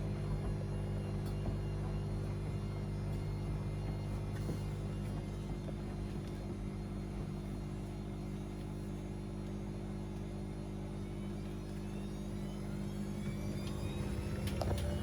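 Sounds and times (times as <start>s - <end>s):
washing machine motor hum: 0.0s - 15.0s
rising motor whine: 10.9s - 15.0s.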